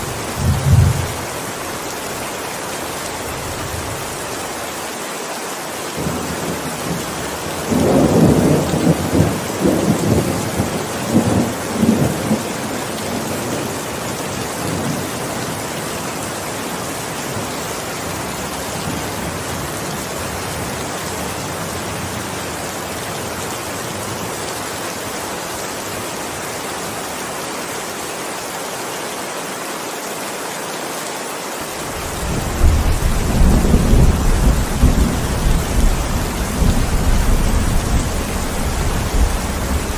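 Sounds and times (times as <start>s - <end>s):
thunder rumbling: 0.0s - 1.3s, 32.0s - 39.9s
heavy rain: 0.0s - 39.9s.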